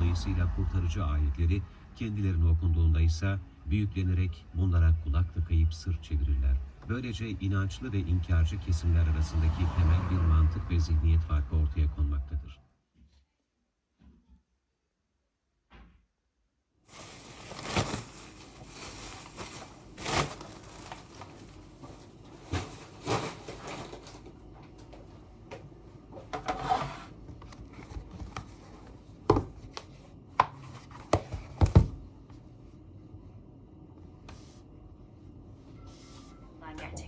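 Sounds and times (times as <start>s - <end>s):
objects rustling and scraping: 16.9s - 32.5s.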